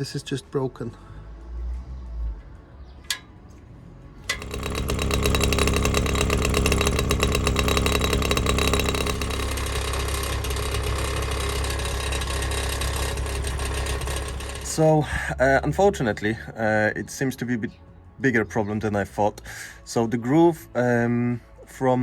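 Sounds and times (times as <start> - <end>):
exhaust flap rattling: 4.2 - 14.8.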